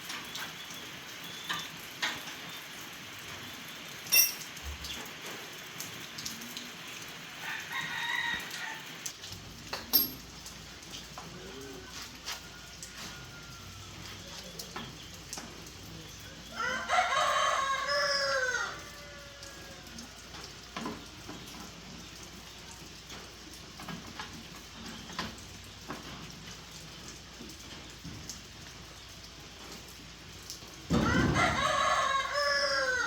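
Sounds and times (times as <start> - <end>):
rooster crowing: 7.4 - 8.9, 12.2 - 14.1, 16.5 - 20.1, 30.9 - 33.0.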